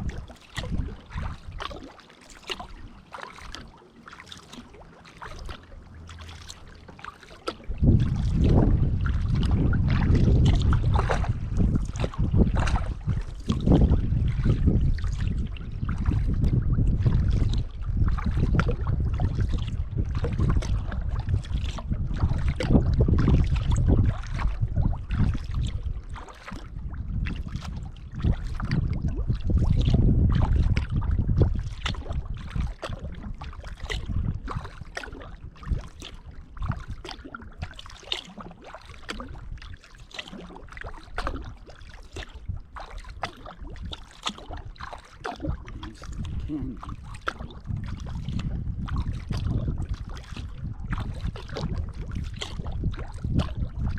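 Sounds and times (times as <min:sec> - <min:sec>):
wind buffeting microphone: 0:00.0 - 0:01.7, 0:07.6 - 0:37.7, 0:39.2 - 0:53.9
paddle splashing in water: 0:00.0 - 0:53.9.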